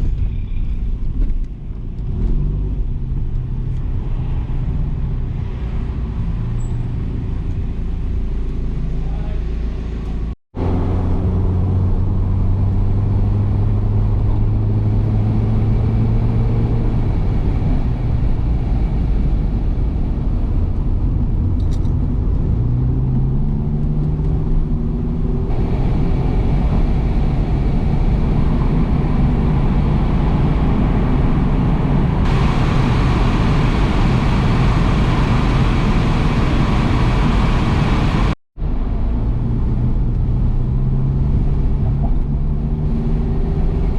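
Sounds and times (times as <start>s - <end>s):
road and wind noise: 0.0s - 43.9s
car engine running: 25.5s - 38.4s.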